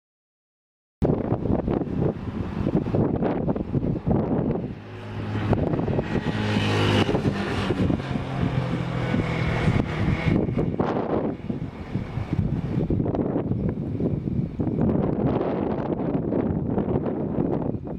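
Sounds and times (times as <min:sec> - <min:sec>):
vehicle engine humming: 0:01.0 - 0:15.2
wind gusting on microphone: 0:01.0 - 0:17.9.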